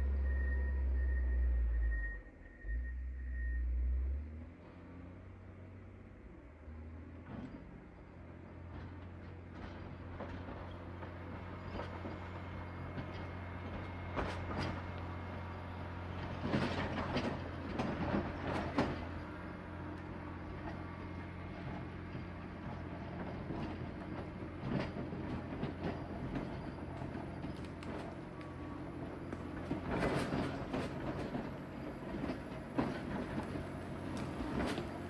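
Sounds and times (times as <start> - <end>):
diesel engine running: 0.0 - 35.0
machine clanking and rattling: 29.3 - 34.9.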